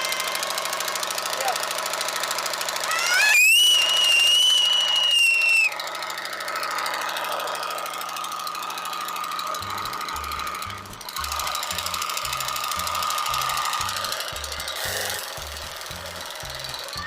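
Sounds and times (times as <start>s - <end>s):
pressure washer pulsing hum: 0.0s - 17.0s
high whine: 9.6s - 17.0s.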